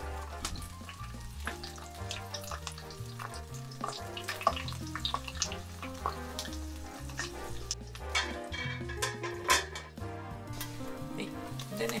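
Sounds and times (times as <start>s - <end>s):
vegetables sizzling in a frying pan: 0.0s - 12.0s
tongs clicking against a pan: 0.4s - 9.7s.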